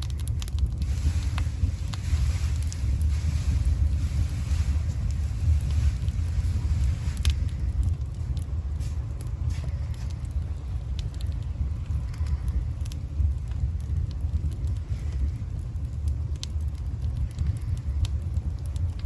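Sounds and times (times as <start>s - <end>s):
burning wood crackling and popping: 0.0s - 19.0s
low rumble of fire: 0.0s - 19.0s.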